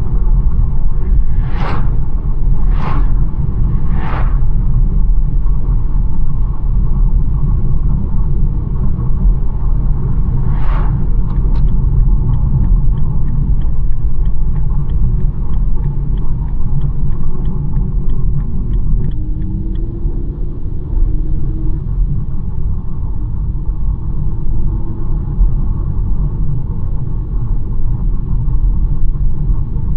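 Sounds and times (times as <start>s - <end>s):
car road and engine rumble: 0.0s - 29.9s
short rush of noise: 0.9s - 5.0s, 10.0s - 11.5s
regular ticking: 11.2s - 19.9s.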